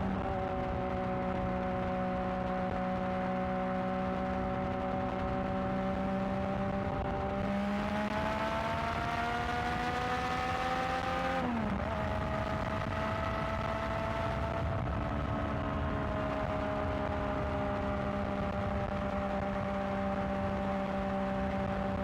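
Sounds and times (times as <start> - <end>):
wind and road noise: 0.0 - 22.0.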